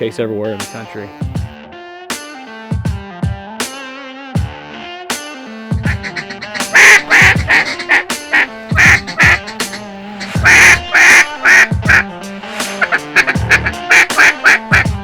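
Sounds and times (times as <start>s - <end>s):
background music: 0.0s - 15.0s
duck quacking: 5.9s - 15.0s.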